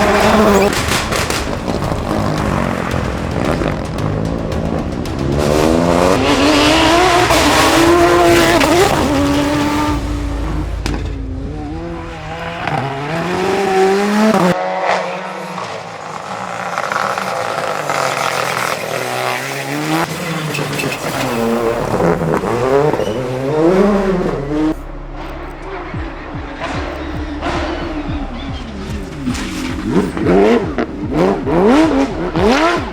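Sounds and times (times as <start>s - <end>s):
rally car engines revving: 0.0s - 32.9s.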